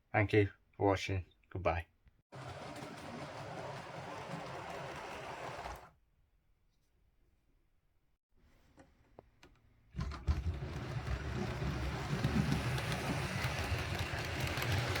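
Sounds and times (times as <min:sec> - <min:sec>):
model train motor and wheels: 0:02.4 - 0:05.9, 0:10.3 - 0:15.0.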